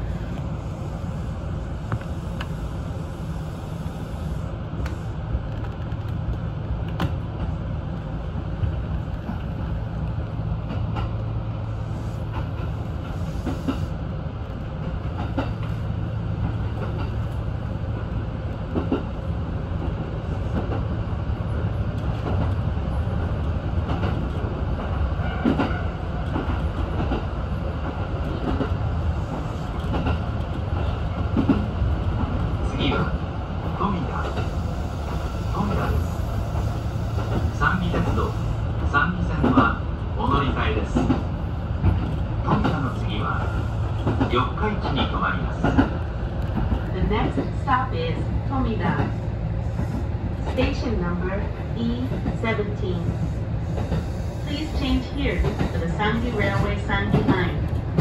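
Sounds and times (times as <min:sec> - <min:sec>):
train running hum: 0:00.0 - 0:58.0.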